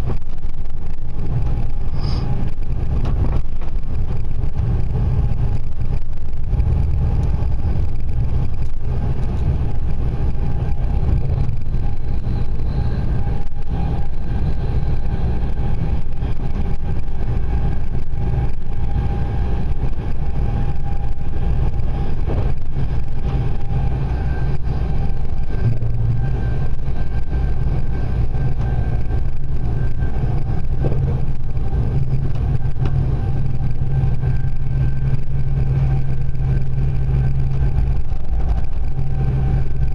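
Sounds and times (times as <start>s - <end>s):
faint steady whine: 0.0s - 39.9s
train wheels rumbling on track: 0.0s - 39.9s.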